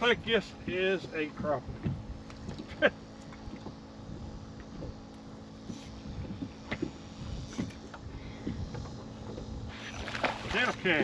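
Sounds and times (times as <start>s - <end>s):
faint steady hum: 0.0s - 11.0s
wind on microphone: 5.6s - 10.8s
soft knocks and splashes: 10.0s - 10.7s.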